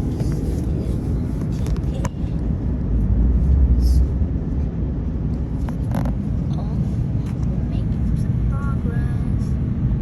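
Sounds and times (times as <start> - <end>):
airliner engine and airflow rumble: 0.0 - 10.0.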